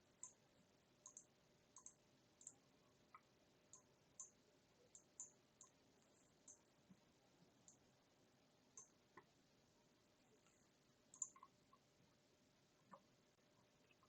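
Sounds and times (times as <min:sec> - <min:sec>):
computer mouse clicks: 0:00.2 - 0:00.4, 0:01.0 - 0:06.6, 0:08.7 - 0:09.3, 0:10.4 - 0:11.8.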